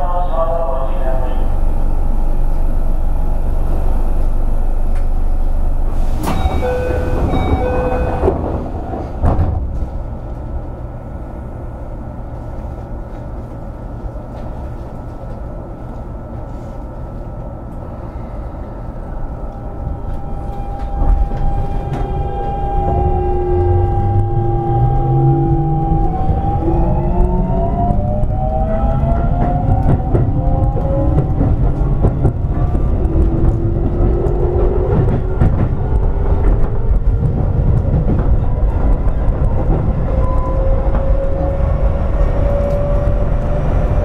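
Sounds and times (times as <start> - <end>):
train standing hum: 0.0 - 44.0
sliding doors closing with thump: 5.9 - 10.0.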